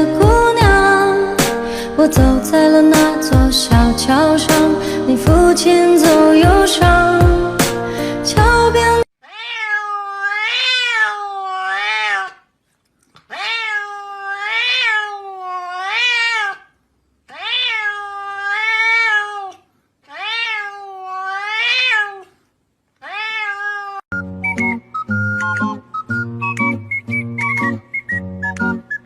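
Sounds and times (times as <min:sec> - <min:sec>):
music: 0:00.0 - 0:09.0, 0:24.1 - 0:29.0
cat meowing: 0:09.2 - 0:12.5, 0:13.3 - 0:22.4, 0:23.0 - 0:24.0.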